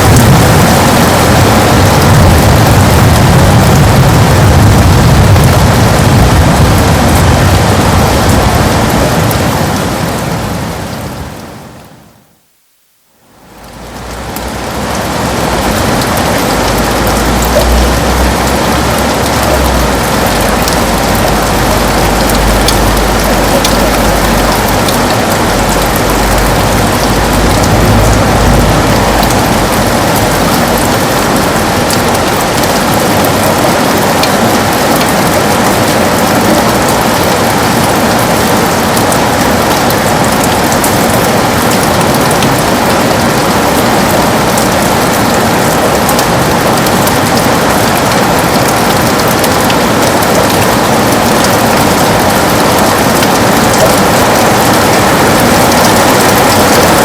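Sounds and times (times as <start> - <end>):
low rumble: 0.0 - 11.1, 13.4 - 33.6
heavy rain on a window: 0.0 - 57.0.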